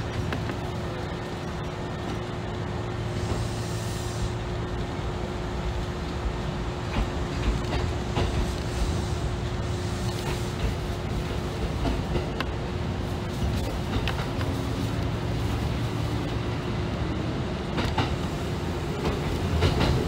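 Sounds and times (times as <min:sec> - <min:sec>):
electric train running: 0:00.0 - 0:20.0
wheel clicks over rail joints: 0:19.0 - 0:20.0.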